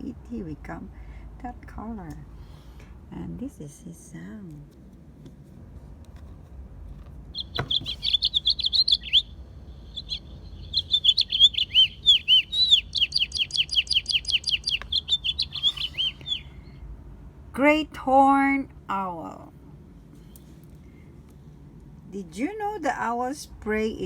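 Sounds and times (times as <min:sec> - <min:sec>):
finch warbling song: 0:07.4 - 0:16.5.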